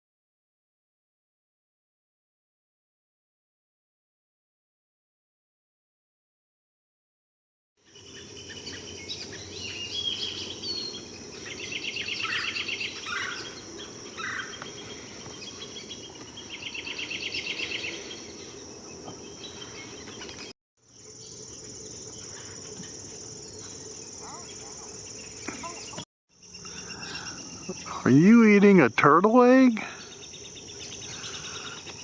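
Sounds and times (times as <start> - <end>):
birds trilling and chirping: 7.8 - 32.0
high-pitched insect drone: 7.8 - 32.0.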